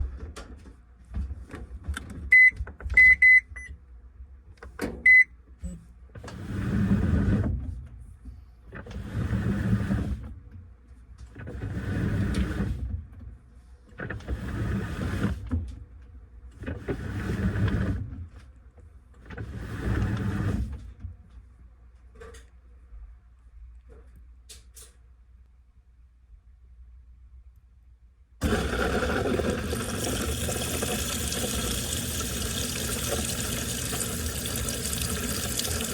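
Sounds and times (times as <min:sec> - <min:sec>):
washing machine beeping: 0:02.3 - 0:03.7, 0:05.0 - 0:05.3, 0:28.4 - 0:35.9
washer motor whirring: 0:06.2 - 0:07.7, 0:08.7 - 0:10.4, 0:11.3 - 0:13.1, 0:14.0 - 0:15.7, 0:16.5 - 0:18.3, 0:19.2 - 0:20.9, 0:28.4 - 0:35.9.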